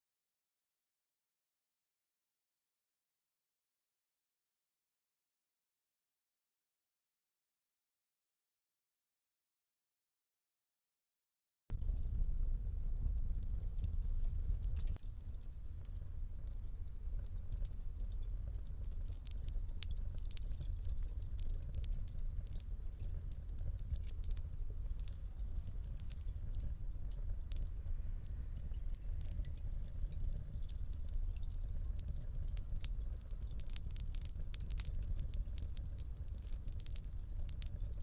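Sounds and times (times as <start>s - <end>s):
fire crackling and popping: 11.7s - 38.0s
low rumble of flame: 11.7s - 38.0s.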